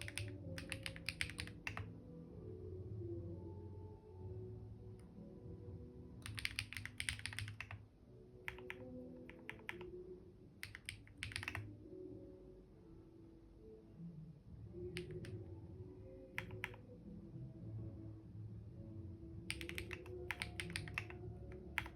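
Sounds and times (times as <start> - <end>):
computer keyboard typing: 0.0 - 1.9, 6.2 - 7.9, 8.5 - 10.0, 10.6 - 11.7, 14.9 - 15.4, 16.3 - 16.9, 19.5 - 21.9
soft background music: 0.0 - 21.9.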